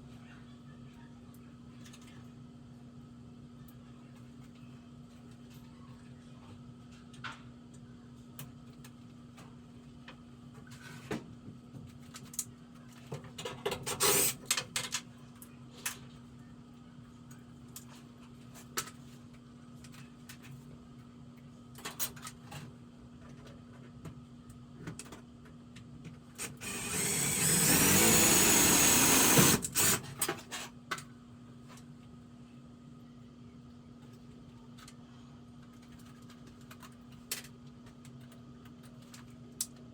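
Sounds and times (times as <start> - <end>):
power drill running: 26.4 - 30.1.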